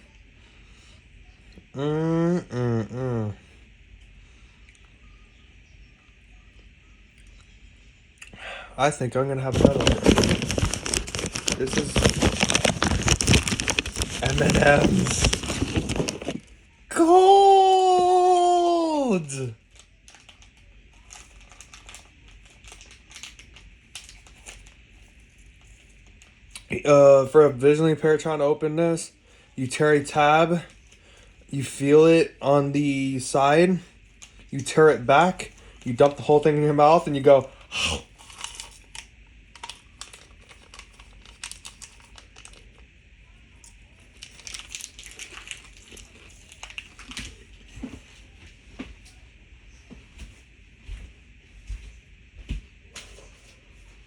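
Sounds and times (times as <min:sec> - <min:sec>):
plastic wrapper crinkling: 0:09.4 - 0:16.6, 0:19.3 - 0:26.4, 0:38.1 - 0:42.8, 0:43.6 - 0:47.5.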